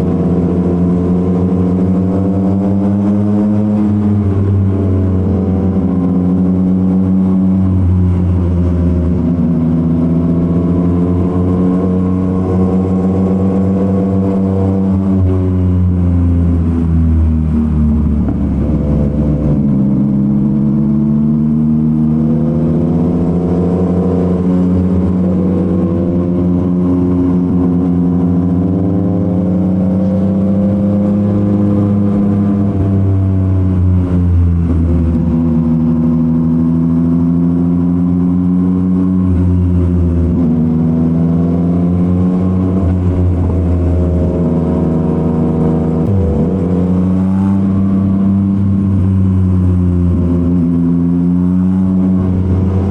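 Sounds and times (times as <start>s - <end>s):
motorcycle engine running: 41.8s - 52.9s.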